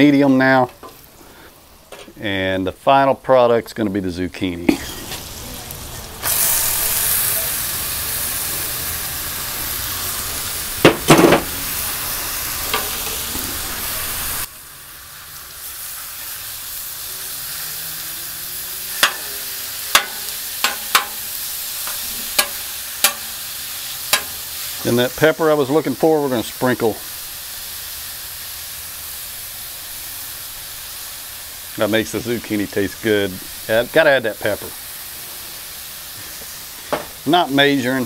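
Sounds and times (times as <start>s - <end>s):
noodles sizzling on a griddle: 0.0s - 2.2s, 4.6s - 38.0s
metal spatula clacking on griddle: 12.7s - 13.2s, 19.0s - 23.5s, 24.1s - 24.9s.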